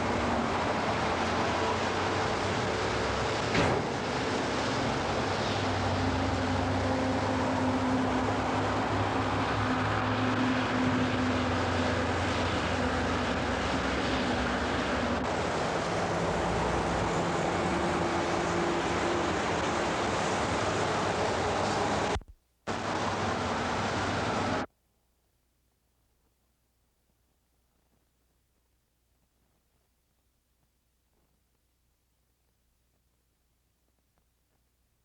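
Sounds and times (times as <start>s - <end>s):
vehicle rumble and hiss: 0.0s - 24.7s.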